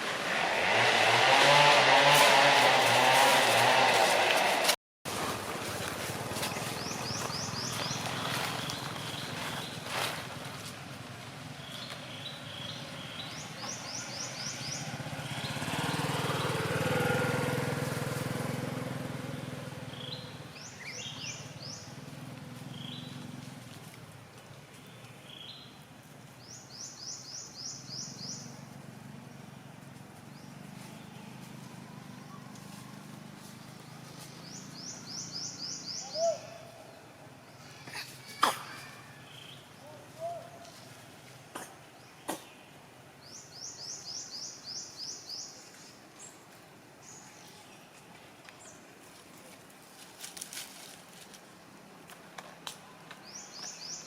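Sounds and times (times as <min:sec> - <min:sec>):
faint outdoor ambience: 0:00.0 - 0:54.0
small bird calling: 0:34.6 - 0:37.0.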